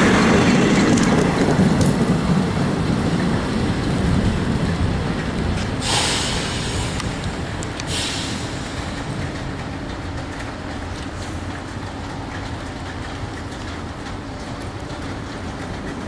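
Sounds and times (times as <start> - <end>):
faint rail ticks: 0.0 - 16.0
train rumbling: 0.0 - 16.0
burst of hiss: 5.8 - 8.9.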